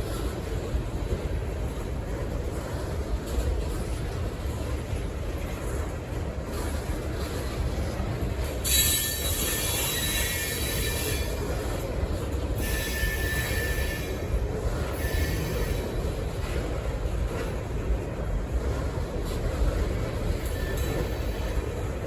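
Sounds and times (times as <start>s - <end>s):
freight train rumbling: 0.0s - 22.0s
wheel flanges squealing: 8.6s - 11.7s, 12.6s - 16.0s.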